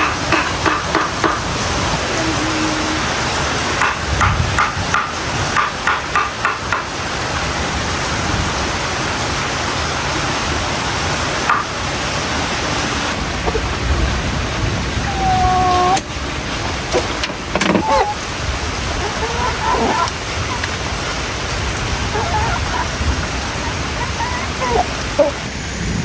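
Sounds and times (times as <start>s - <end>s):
sharp knocks: 0.0s - 1.5s
heavy rain: 0.0s - 26.0s.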